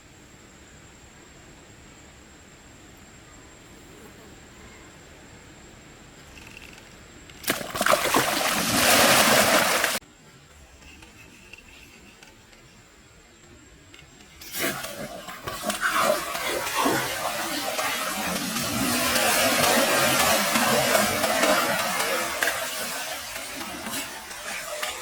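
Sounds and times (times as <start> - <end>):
water splashing: 7.4 - 10.0, 14.4 - 25.0.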